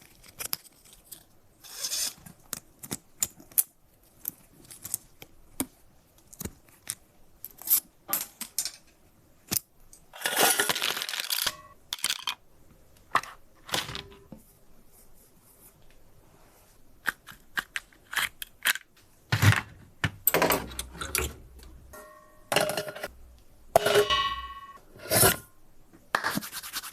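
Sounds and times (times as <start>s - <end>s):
small metal parts clicking: 9.9s - 12.4s
short metallic rings: 21.9s - 23.1s.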